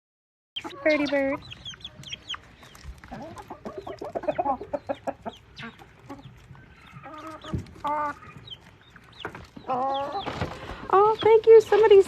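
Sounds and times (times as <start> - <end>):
chicken drawn-out call: 0.6 - 8.8
chickens clucking: 0.6 - 12.0.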